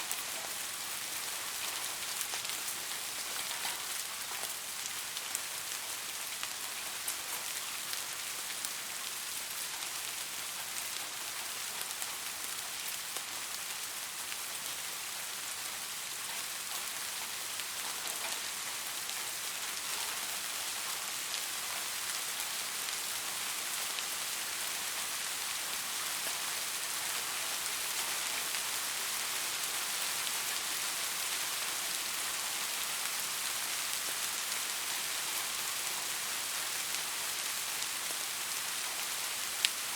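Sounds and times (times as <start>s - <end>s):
raindrops ticking on surface: 0.0s - 39.9s
steady rain falling: 0.0s - 39.9s.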